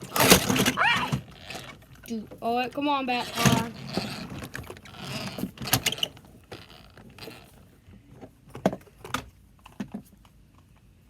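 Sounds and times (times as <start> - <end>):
toys clicking and knocking: 0.0 - 7.6.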